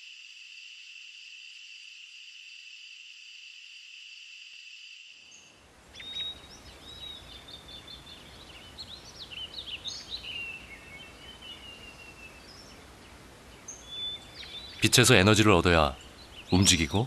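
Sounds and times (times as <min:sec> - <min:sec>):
forest ambience hiss: 0:00.0 - 0:17.0
songbirds chirping and whistling: 0:05.3 - 0:17.0.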